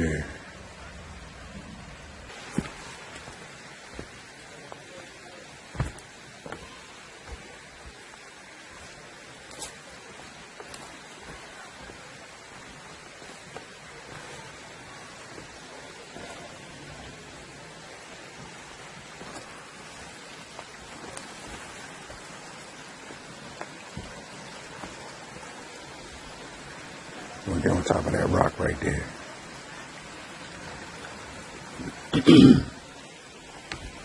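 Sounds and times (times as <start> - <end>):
rocky stream rushing: 0.0 - 34.0
footsteps on rock: 2.3 - 16.6, 18.0 - 25.8.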